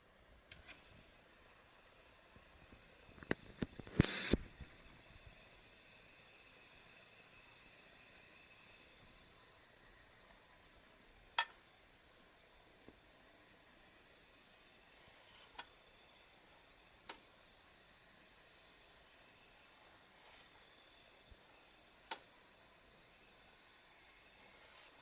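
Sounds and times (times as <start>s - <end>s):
faint machine hiss: 0.0s - 25.0s.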